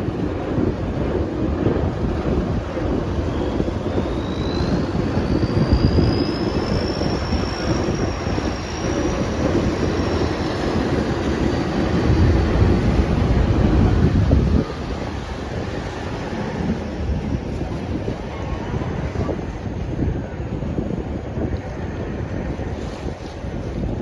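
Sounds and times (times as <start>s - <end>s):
ferry engine and water rumble: 0.0s - 24.0s
wind buffeting microphone: 0.0s - 24.0s
faint high whine: 2.2s - 18.0s.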